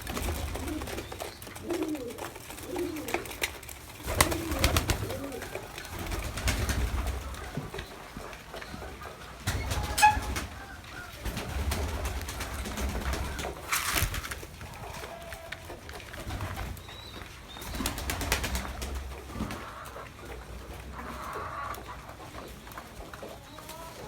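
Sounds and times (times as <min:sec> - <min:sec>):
rustling: 0:00.0 - 0:19.5
pigeons cooing: 0:00.0 - 0:24.0.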